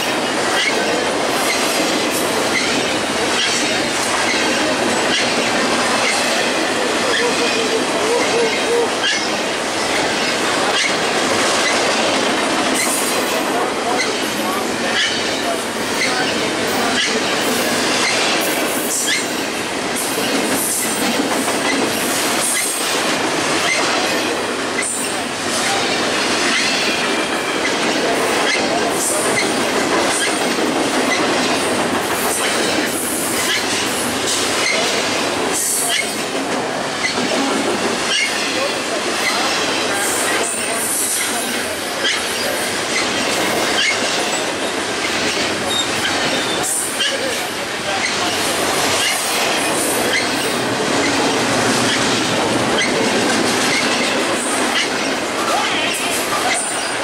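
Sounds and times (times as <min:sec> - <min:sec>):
steel wheels rolling on rail: 0:00.0 - 0:57.0
high wheel squeaks: 0:00.5 - 0:01.7, 0:02.5 - 0:05.4, 0:19.0 - 0:19.3, 0:42.0 - 0:47.3, 0:49.0 - 0:55.0
wheels squealing: 0:49.0 - 0:55.0.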